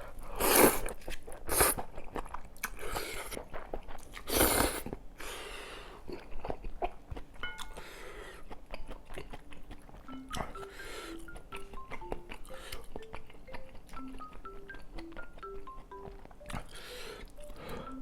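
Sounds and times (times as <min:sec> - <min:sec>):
wet chewing: 0:00.3 - 0:05.0, 0:06.0 - 0:18.0
soft stepping music notes: 0:07.1 - 0:18.0.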